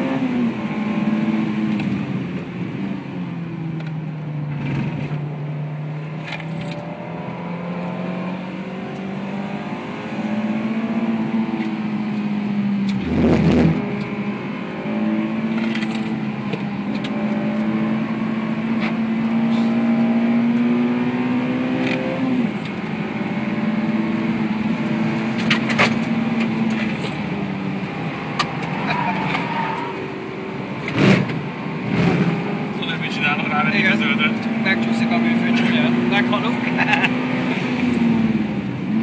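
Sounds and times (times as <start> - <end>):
car engine under load: 0.0 - 39.0.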